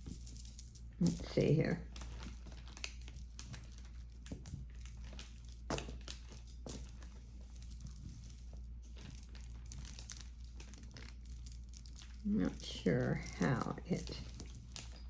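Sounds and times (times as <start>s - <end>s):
jewelry clicking: 0.0s - 2.0s
crinkling and rustling: 0.0s - 15.0s.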